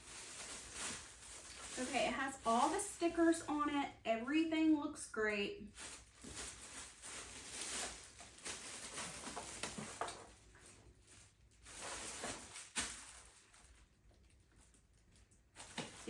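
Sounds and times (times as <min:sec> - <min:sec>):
packaging rustling and knocks: 0:05.8 - 0:10.8, 0:11.6 - 0:13.8, 0:15.6 - 0:16.0.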